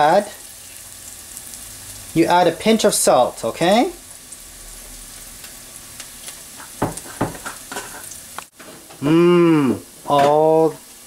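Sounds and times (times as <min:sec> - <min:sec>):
onion sizzling in butter: 0:00.0 - 0:11.0
person's voice: 0:09.0 - 0:10.8.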